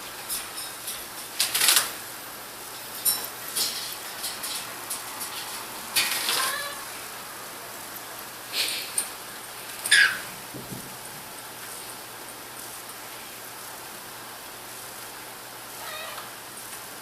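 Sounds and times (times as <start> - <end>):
light clattering and rustling: 2.7 - 6.6
cockatiel chirps: 9.9 - 10.3.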